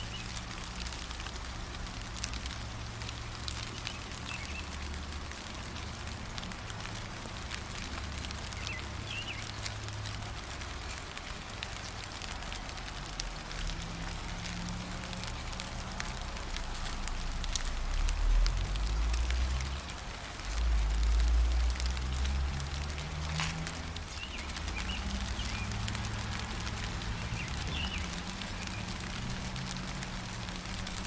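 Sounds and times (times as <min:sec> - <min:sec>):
gentle rain pattering: 0:00.0 - 0:31.0.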